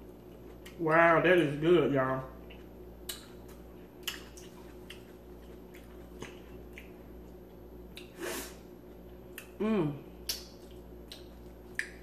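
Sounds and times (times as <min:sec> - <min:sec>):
wet chewing clicks: 0:02.4 - 0:07.0, 0:10.2 - 0:12.0.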